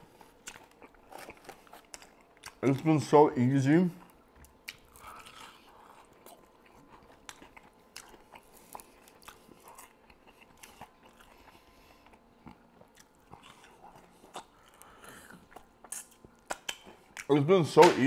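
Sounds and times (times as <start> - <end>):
biting and chewing clicks: 4.4 - 17.3.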